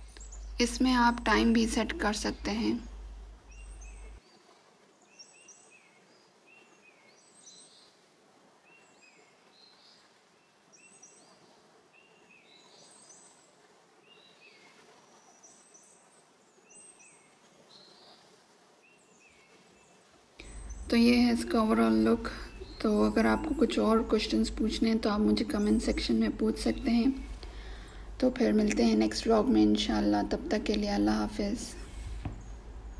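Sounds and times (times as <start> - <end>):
low steady hiss: 0.0 - 32.9
faint bird chirps: 20.4 - 28.9.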